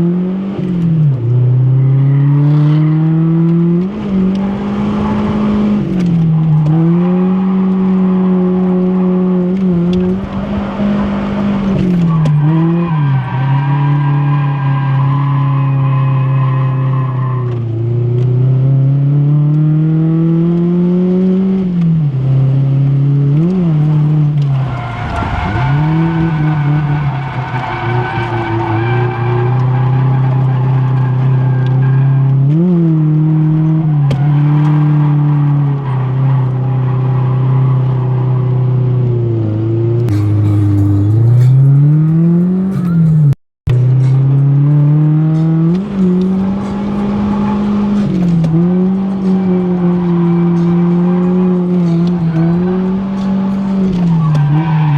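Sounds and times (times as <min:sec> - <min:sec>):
car engine revving hard: 0:00.0 - 0:43.4, 0:44.0 - 0:54.0
tyre squeal and skidding: 0:01.7 - 0:03.1, 0:11.8 - 0:17.7, 0:24.4 - 0:32.5, 0:33.8 - 0:38.9, 0:40.1 - 0:43.4, 0:46.4 - 0:54.9.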